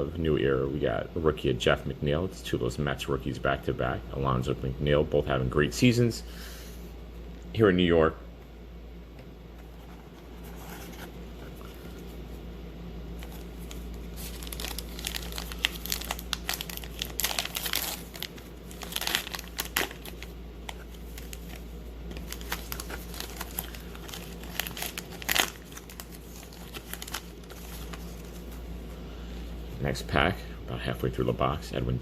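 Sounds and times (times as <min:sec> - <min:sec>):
card pack wrapper crinkling and tearing: 0:13.2 - 0:28.6.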